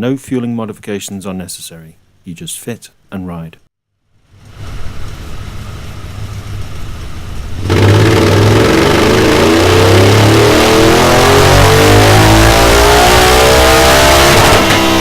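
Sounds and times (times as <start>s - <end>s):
motorcycle engine revving on dyno: 7.5s - 15.0s.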